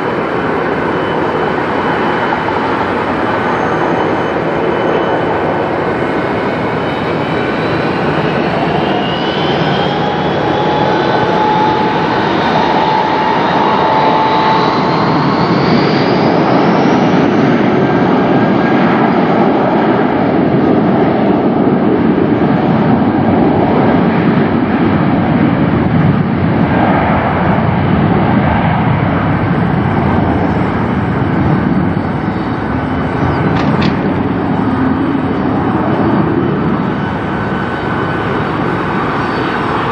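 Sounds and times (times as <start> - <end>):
jet engines whining: 0.0 - 39.9
loud jet engine roar: 0.0 - 39.9.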